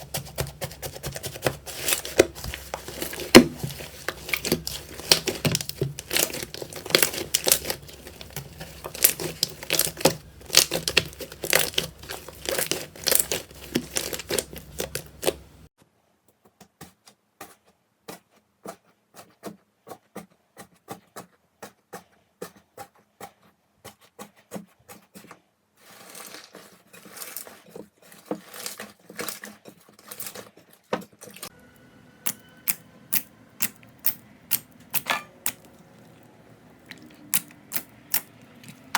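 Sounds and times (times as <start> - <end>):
slime crackling and popping: 0.8 - 15.7, 32.2 - 36.1, 36.7 - 38.9.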